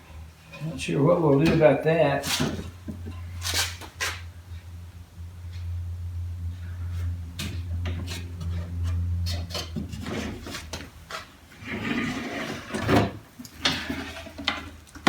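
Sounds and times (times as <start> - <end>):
low steady hum: 0.0 - 15.0
wood rubbing and scraping: 0.5 - 4.7, 6.6 - 14.8.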